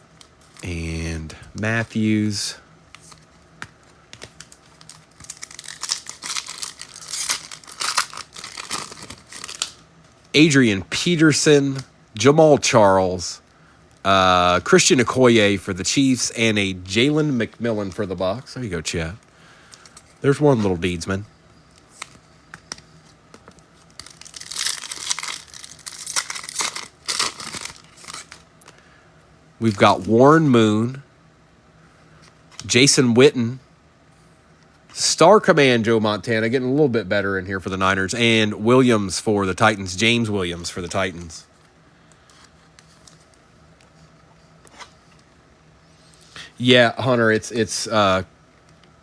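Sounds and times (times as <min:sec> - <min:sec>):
foil wrapper crinkling and ripping: 0:04.2 - 0:09.8, 0:23.8 - 0:28.4.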